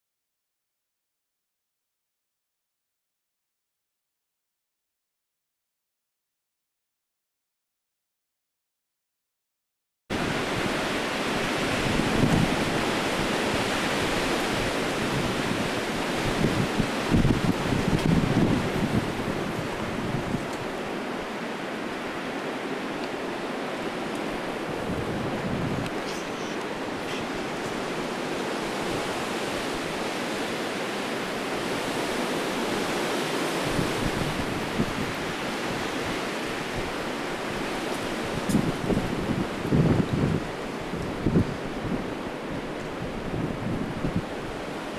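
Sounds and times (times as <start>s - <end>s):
strong gusting wind: 10.1s - 44.9s
wind buffeting microphone: 10.1s - 44.9s.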